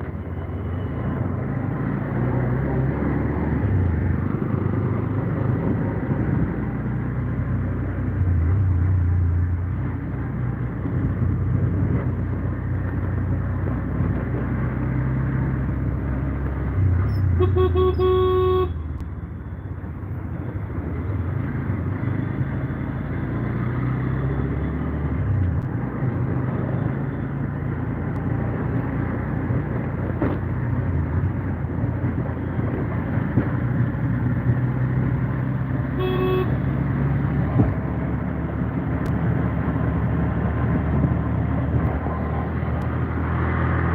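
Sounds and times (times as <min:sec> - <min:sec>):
vehicle horn: 0:17.4 - 0:18.9, 0:35.9 - 0:36.7.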